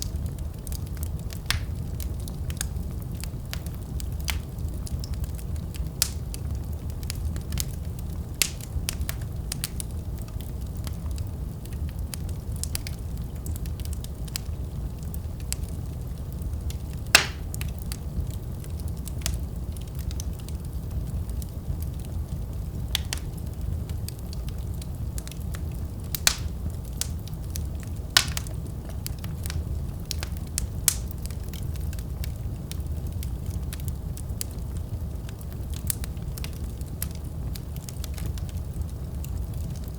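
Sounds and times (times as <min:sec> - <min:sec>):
low rumble of flames: 0:00.0 - 0:39.9
sharp pops of fire: 0:00.0 - 0:39.9
wood fire crackling: 0:00.0 - 0:39.9.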